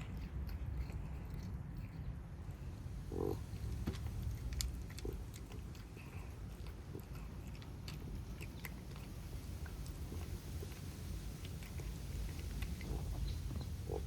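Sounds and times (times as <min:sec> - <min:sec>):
cats chewing food: 0:00.0 - 0:14.0
low steady rumble: 0:00.0 - 0:14.0.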